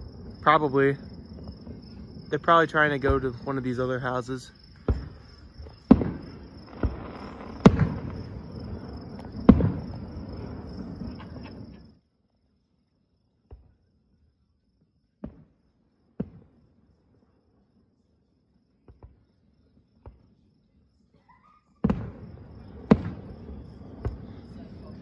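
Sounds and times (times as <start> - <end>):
distant fireworks bangs: 0.0 - 11.9, 15.2 - 16.6, 21.8 - 25.0
crickets chirring: 0.0 - 25.0.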